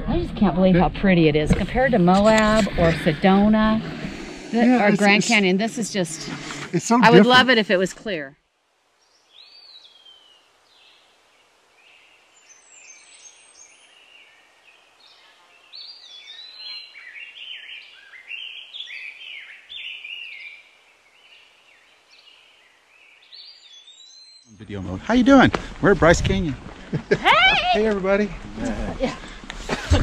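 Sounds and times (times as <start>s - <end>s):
faint outdoor hiss: 0.0s - 30.0s
small birds singing: 9.0s - 25.1s.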